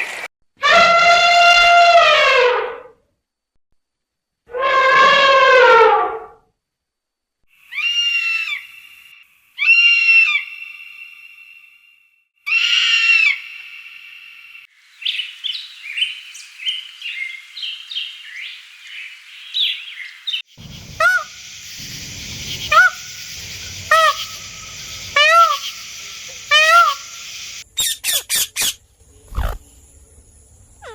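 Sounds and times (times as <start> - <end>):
rapid varied bird chirping: 14.9 - 30.0
bird squawking: 20.6 - 28.8.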